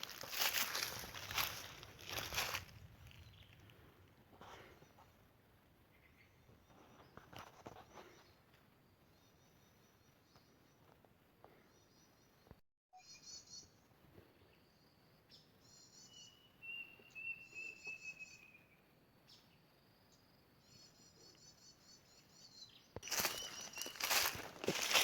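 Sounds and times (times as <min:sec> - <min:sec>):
small birds trilling: 0:00.0 - 0:03.7, 0:20.7 - 0:25.0.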